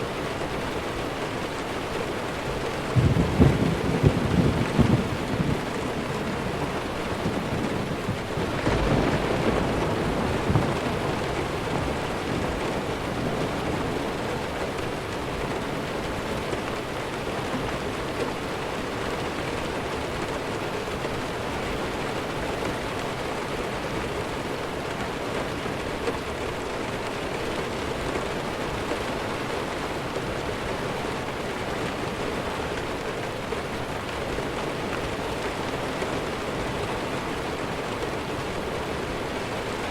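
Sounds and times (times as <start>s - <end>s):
heavy rain: 0.0s - 39.9s
distant thunder rumble: 2.8s - 16.0s.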